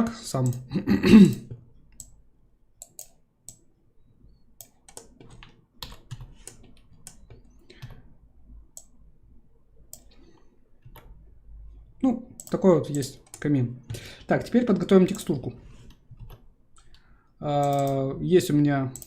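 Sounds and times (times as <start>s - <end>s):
mouse and keyboard clicks: 4.6s - 8.0s, 17.6s - 18.0s.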